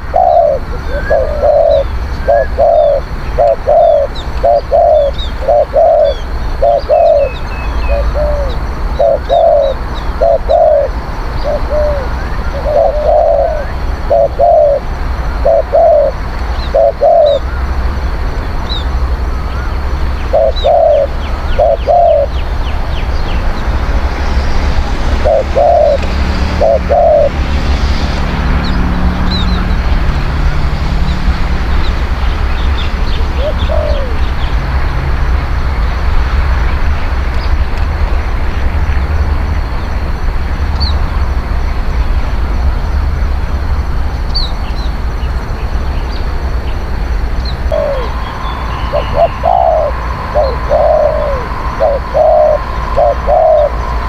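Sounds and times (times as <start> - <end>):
dove cooing: 0.0 - 17.4, 20.3 - 22.3, 25.2 - 27.4, 33.3 - 34.2, 47.6 - 54.0
steady low rumble: 0.0 - 54.0.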